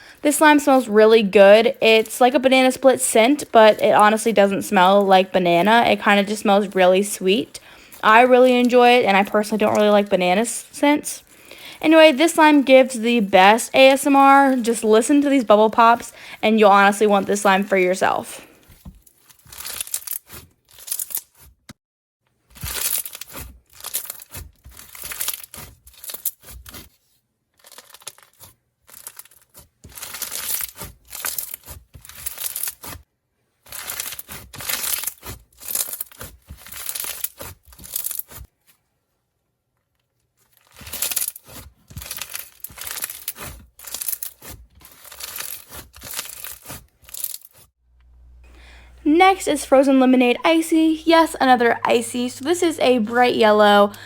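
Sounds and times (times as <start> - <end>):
slime crackling and popping: 18.8 - 21.5, 22.6 - 26.9, 27.6 - 33.0, 33.7 - 38.5, 40.6 - 47.6.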